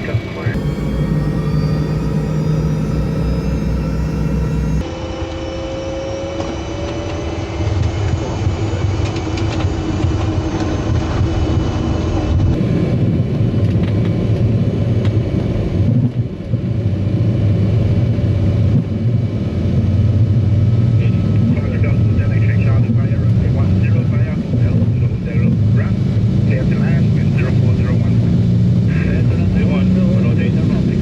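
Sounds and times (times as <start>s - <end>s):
jet engines at takeoff: 0.6s - 11.0s.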